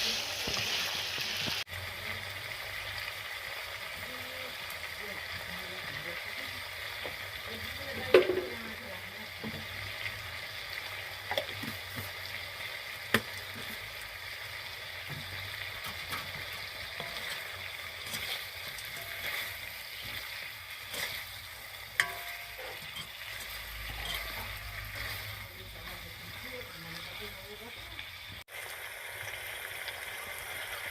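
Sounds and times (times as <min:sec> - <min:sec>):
food sizzling in hot oil: 0:00.0 - 0:30.9
utensil knocking against pan: 0:08.1 - 0:08.5.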